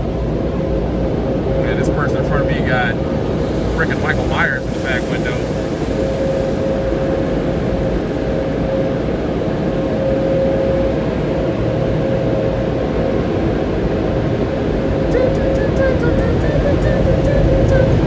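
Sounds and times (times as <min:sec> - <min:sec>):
car wash dryer blowers: 0:01.8 - 0:11.7.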